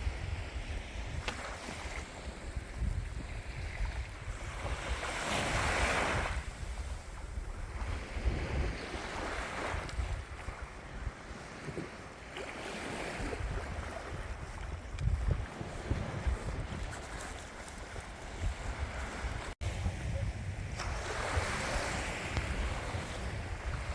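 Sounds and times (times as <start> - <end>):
wind rumbling on microphone: 0.0 - 23.9
sea waves washing in: 1.5 - 23.9.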